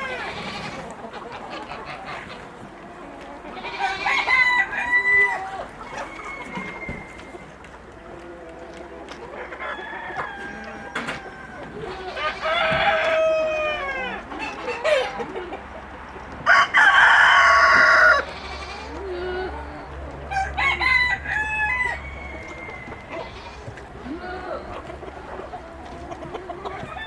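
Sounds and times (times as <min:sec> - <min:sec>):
hens clucking: 0:00.0 - 0:27.0
rooster crowing: 0:03.7 - 0:07.4, 0:09.6 - 0:14.2, 0:16.4 - 0:18.6, 0:20.3 - 0:23.6.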